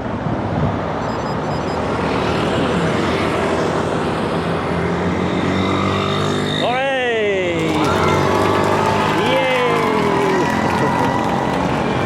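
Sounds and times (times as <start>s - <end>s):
highway traffic din: 0.0s - 12.0s
heavy vehicle engine hum: 7.4s - 12.0s.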